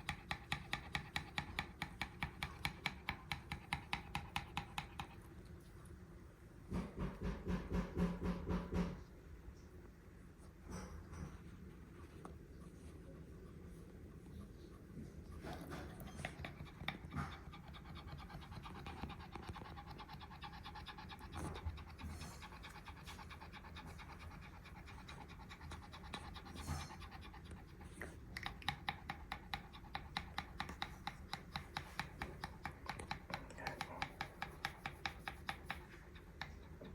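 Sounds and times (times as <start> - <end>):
dog panting hard: 0.0 - 5.4, 12.9 - 36.9.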